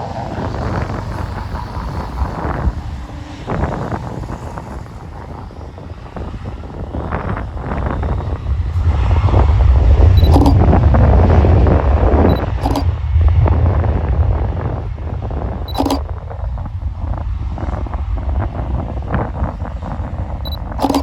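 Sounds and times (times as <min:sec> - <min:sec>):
wind buffeting microphone: 0:00.0 - 0:20.8
brief click: 0:10.2 - 0:10.6, 0:12.3 - 0:12.8, 0:15.7 - 0:16.0, 0:20.8 - 0:21.0.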